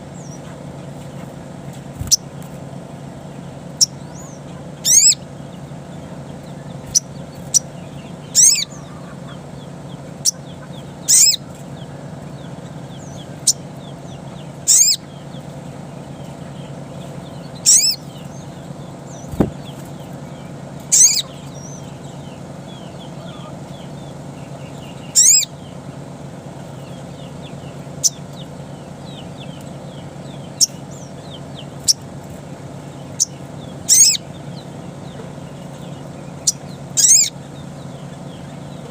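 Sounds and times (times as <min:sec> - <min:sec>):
steady low hum: 0:00.0 - 0:38.9
faint bird chirps: 0:03.7 - 0:25.9, 0:26.6 - 0:32.2, 0:32.8 - 0:38.9.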